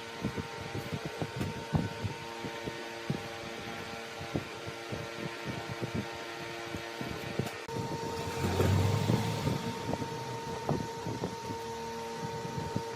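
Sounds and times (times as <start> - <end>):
lathe motor hum: 7.6 - 12.9.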